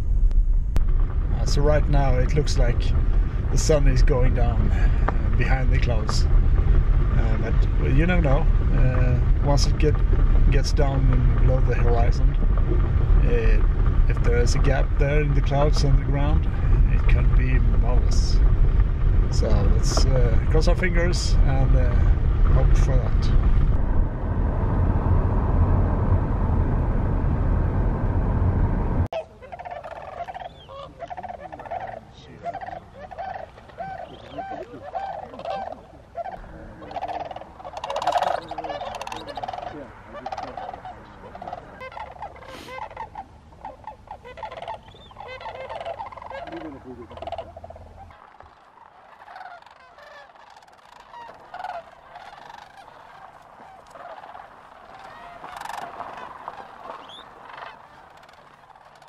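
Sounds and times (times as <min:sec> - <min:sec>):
loud low rumble: 0:00.0 - 0:29.1
cranes calling: 0:29.2 - 0:59.0.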